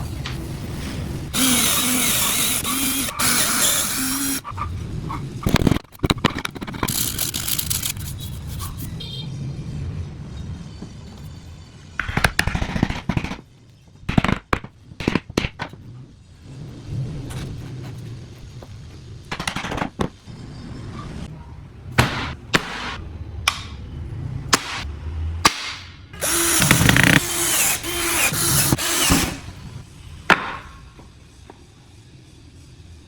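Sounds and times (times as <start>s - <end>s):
power drill boring into wood: 1.3s - 4.5s, 26.2s - 29.6s.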